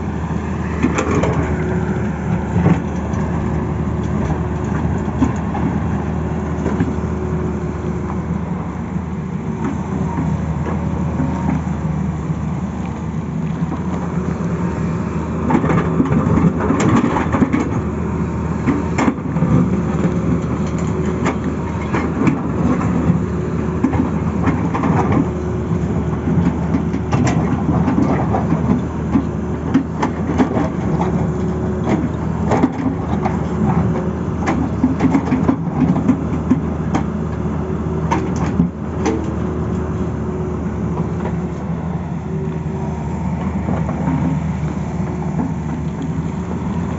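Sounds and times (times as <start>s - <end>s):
excavator engine hum: 0.0s - 46.9s
sharp clanks and rattles: 15.4s - 17.9s, 26.3s - 37.1s.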